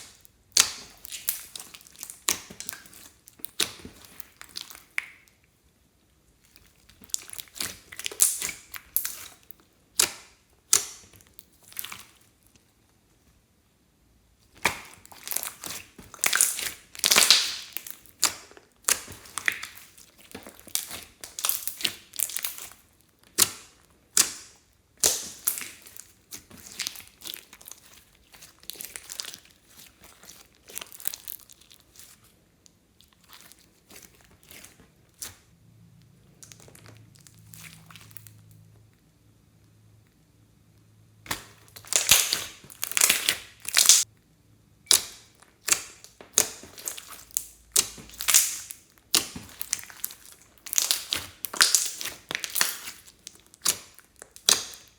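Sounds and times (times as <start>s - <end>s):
slime squishing with sticky pops: 0.0s - 5.6s, 6.3s - 12.7s, 14.4s - 38.6s, 40.8s - 44.2s, 44.8s - 54.9s.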